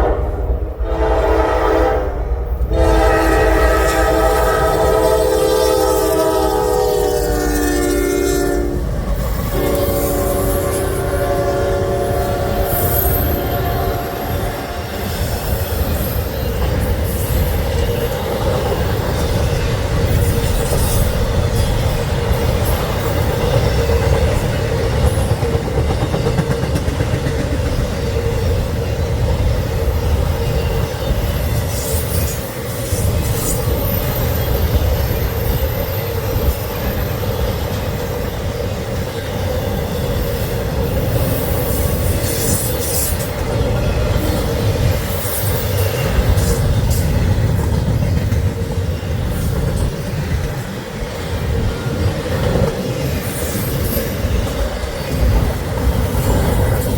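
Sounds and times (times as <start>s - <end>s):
train horn blast: 0.0s - 15.2s
train wheels rumbling on rail: 0.0s - 56.9s.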